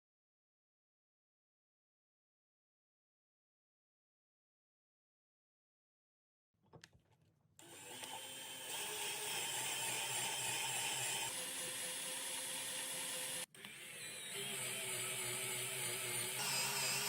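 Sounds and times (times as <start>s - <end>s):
power tool whirring and grinding: 7.6s - 17.0s.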